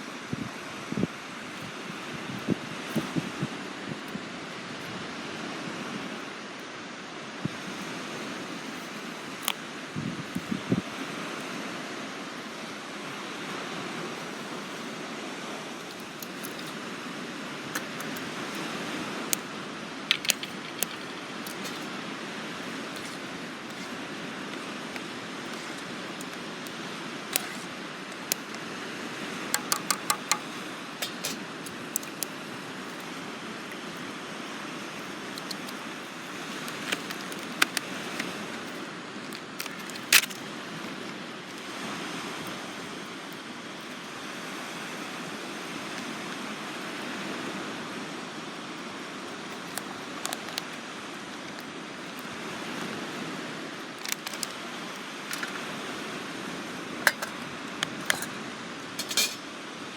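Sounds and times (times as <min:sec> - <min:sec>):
surf washing: 0:00.0 - 0:59.9
wind: 0:00.0 - 0:59.9
sharp clicks: 0:29.6 - 0:32.3.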